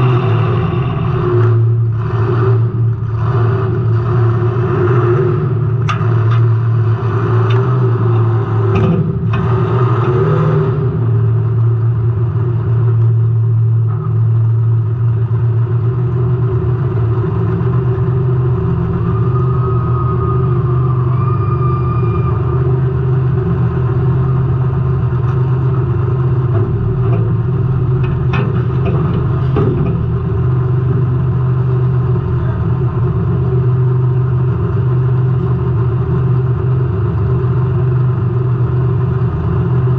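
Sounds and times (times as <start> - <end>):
race car engine running hard: 0.0 - 39.9
chassis rattling: 18.6 - 34.0.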